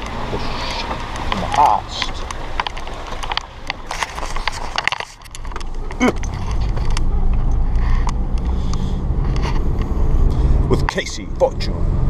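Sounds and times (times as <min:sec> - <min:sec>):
clicks and knocks: 0:00.0 - 0:08.4
vehicle engine running: 0:00.0 - 0:12.0.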